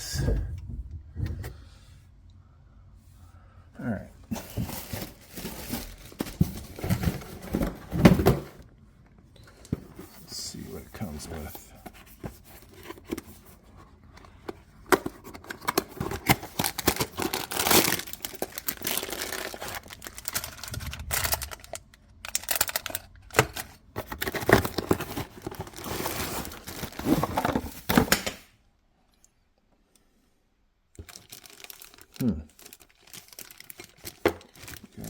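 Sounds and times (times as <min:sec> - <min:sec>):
paper and plastic rustling: 0:04.3 - 0:08.6, 0:09.4 - 0:28.4, 0:31.0 - 0:35.0.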